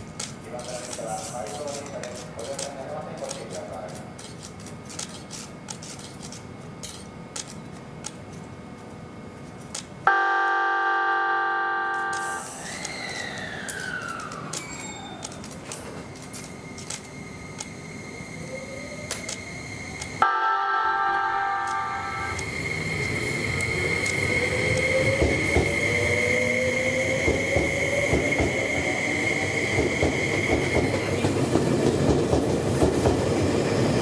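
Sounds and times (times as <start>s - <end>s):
train horn blast: 10.1s - 12.4s, 20.2s - 22.4s.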